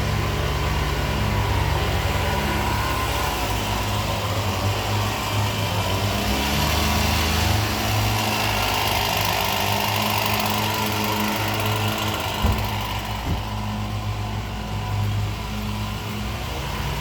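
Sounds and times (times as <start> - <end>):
motor humming: 9.8 - 13.8.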